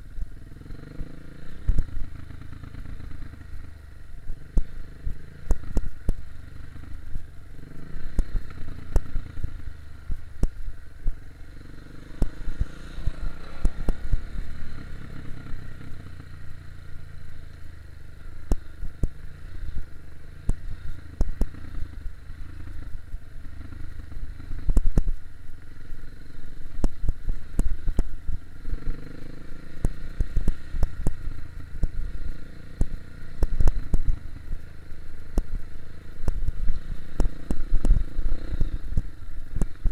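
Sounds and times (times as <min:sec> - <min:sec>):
dirt bike engine revving: 0:11.4 - 0:17.4, 0:25.7 - 0:39.0.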